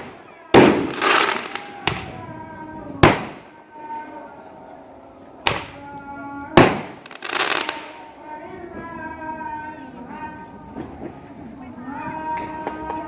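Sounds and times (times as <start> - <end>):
fireworks bangs: 0.0 - 4.0, 5.4 - 5.9, 6.5 - 9.0
fireworks crackling: 0.0 - 4.2, 5.4 - 10.9.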